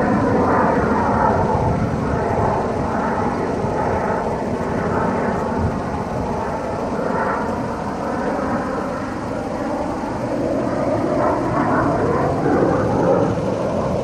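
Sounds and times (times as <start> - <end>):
aircraft engine rushing: 0.0 - 14.0.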